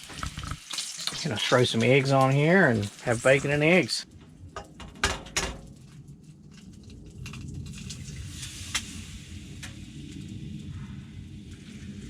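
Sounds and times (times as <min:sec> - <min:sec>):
food sizzling in a pan: 0:00.0 - 0:04.0, 0:07.7 - 0:10.2.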